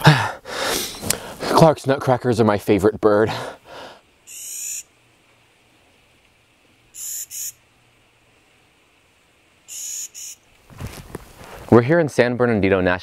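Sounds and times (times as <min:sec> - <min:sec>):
bird giving harsh grating calls: 0:04.2 - 0:04.9, 0:06.9 - 0:07.6, 0:09.7 - 0:10.5.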